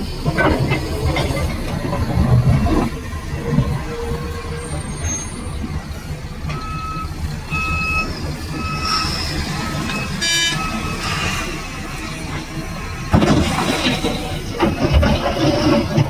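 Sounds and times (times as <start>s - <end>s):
reversing alarm beeping: 6.4s - 11.6s.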